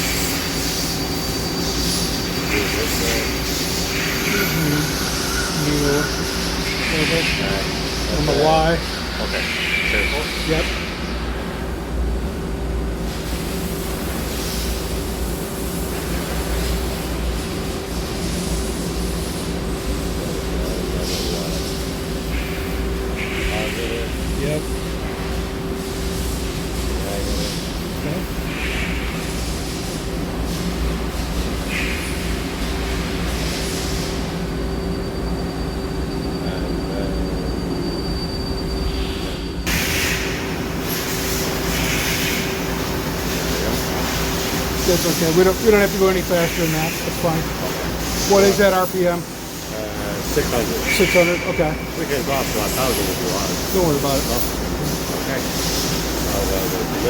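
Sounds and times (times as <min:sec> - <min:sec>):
faint high whine: 0:00.0 - 0:11.9, 0:34.3 - 0:40.6
machine tool humming: 0:00.0 - 0:19.4
whirring hiss: 0:00.0 - 0:37.9, 0:38.8 - 0:57.0.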